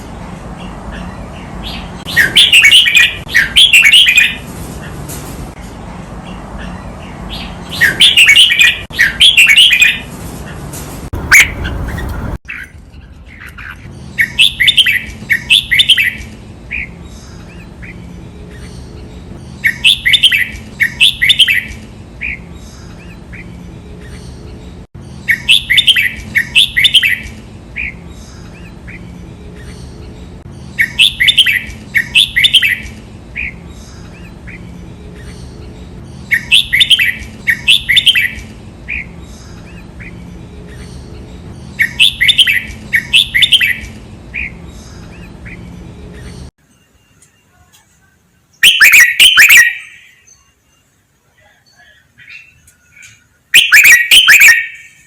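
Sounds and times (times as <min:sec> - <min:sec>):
bulbul singing whistled phrases: 0:01.7 - 0:04.4, 0:07.4 - 0:10.0, 0:14.0 - 0:17.7, 0:19.5 - 0:24.2, 0:25.2 - 0:28.7, 0:30.6 - 0:34.6, 0:35.2 - 0:40.2, 0:40.8 - 0:55.0.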